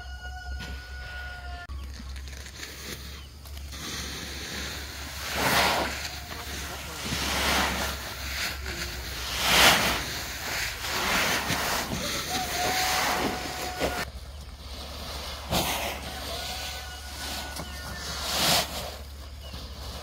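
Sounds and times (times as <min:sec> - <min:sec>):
plastic sack rustling: 0:01.8 - 0:20.0
rice grains pouring out: 0:02.3 - 0:14.1.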